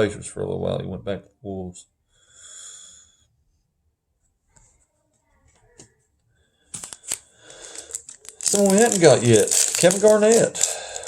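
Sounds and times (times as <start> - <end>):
cards clicking and snapping: 6.7 - 11.0.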